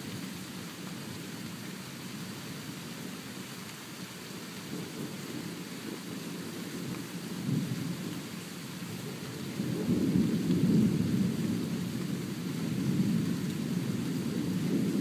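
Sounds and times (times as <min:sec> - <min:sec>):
faint rain hiss: 0:00.0 - 0:15.0
thunder rumbling: 0:09.0 - 0:15.0.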